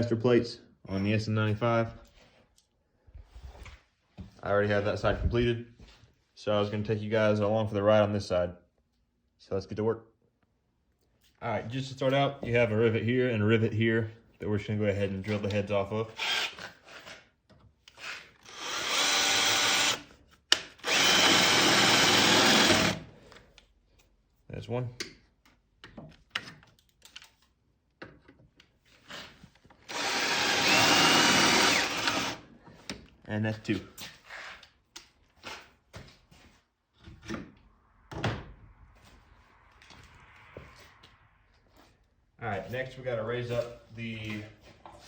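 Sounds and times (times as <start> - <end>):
power drill boring metal: 16.1 - 16.8, 18.0 - 20.1, 20.8 - 23.1, 29.9 - 32.4.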